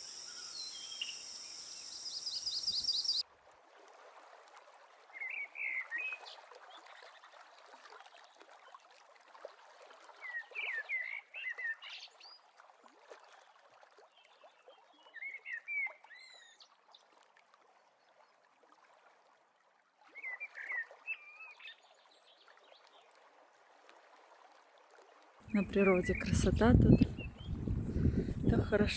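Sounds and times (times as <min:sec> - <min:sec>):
songbird singing whistled phrases: 0:00.0 - 0:03.2, 0:25.6 - 0:28.7
flowing water: 0:06.0 - 0:10.6, 0:23.1 - 0:28.9.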